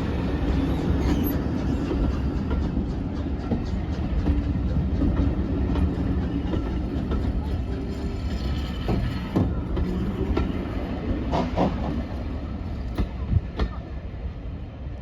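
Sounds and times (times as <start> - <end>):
train rumbling: 0.0 - 15.0
wheels clicking over rail joints: 0.2 - 12.0.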